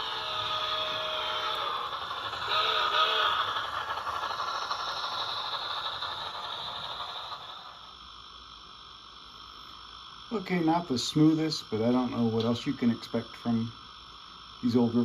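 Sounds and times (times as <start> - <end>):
model train motor whirring: 0.0 - 8.7.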